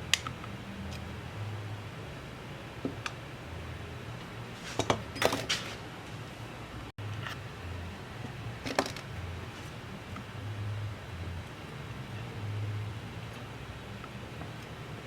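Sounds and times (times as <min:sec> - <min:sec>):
low steady hum: 0:00.0 - 0:05.4, 0:06.0 - 0:15.0.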